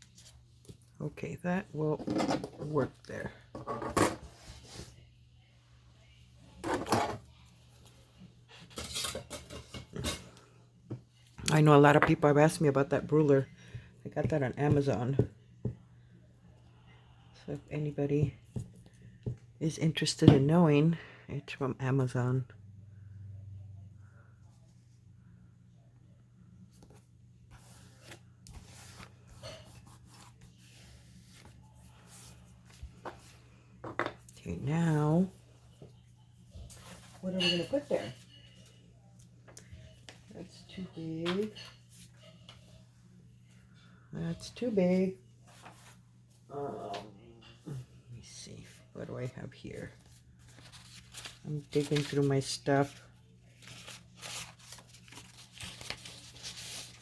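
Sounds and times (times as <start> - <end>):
low steady hum: 7.2 - 57.0
paper rustling and tapping: 50.4 - 52.3, 53.6 - 57.0.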